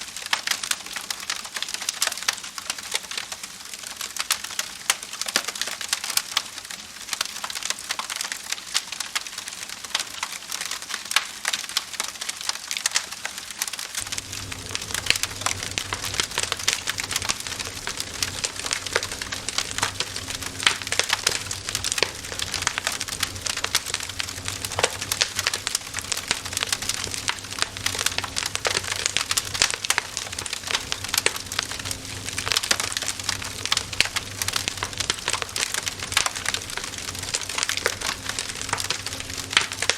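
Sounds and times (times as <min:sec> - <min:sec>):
wood fire crackling: 0:00.1 - 0:39.9
low steady hum: 0:14.0 - 0:39.9.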